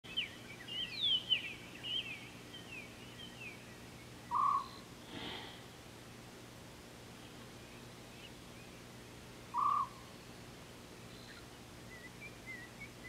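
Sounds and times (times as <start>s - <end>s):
birds chirping and whistling: 0.1s - 4.8s, 9.5s - 10.4s, 11.0s - 13.0s.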